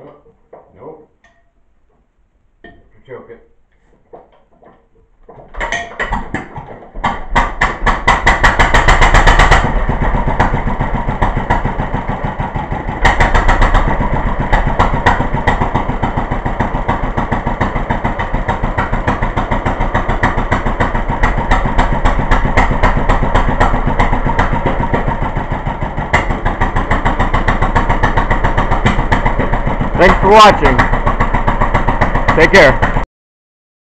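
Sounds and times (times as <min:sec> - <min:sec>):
stationary engine running: 0:07.4 - 0:33.0.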